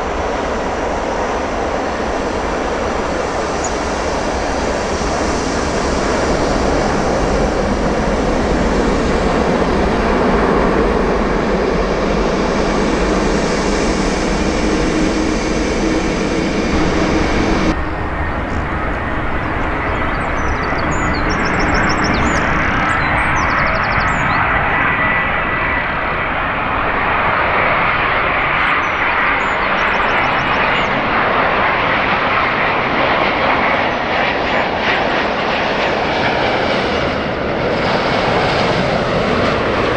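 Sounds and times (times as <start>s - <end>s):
jet engine roar: 3.5s - 11.9s, 15.3s - 39.5s.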